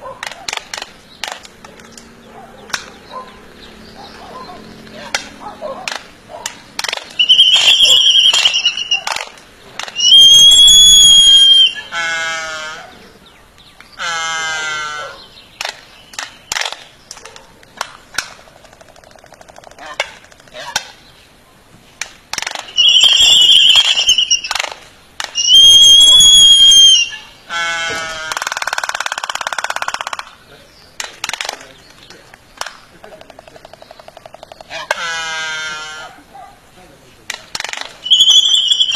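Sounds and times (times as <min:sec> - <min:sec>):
bird squawks: 0:00.0 - 0:13.2, 0:14.0 - 0:17.4, 0:18.6 - 0:21.0, 0:22.6 - 0:30.4, 0:32.9 - 0:36.5, 0:38.0 - 0:38.9
buzzy bird call: 0:00.4 - 0:13.3, 0:22.4 - 0:36.3, 0:37.6 - 0:38.9
bird whistled notes: 0:07.2 - 0:09.2, 0:10.0 - 0:11.9, 0:22.7 - 0:24.7, 0:25.4 - 0:27.3, 0:38.0 - 0:38.9
bird clicks: 0:31.0 - 0:35.0.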